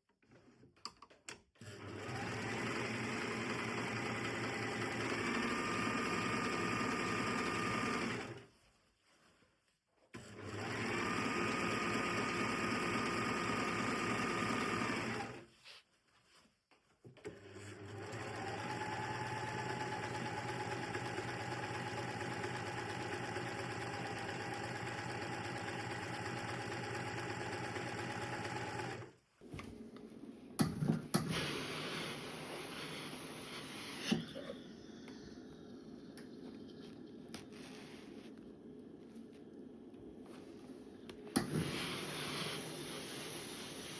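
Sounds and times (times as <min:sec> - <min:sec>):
sewing machine stitching: 0:01.6 - 0:08.4, 0:10.2 - 0:15.5, 0:17.2 - 0:30.0, 0:41.3 - 0:43.9.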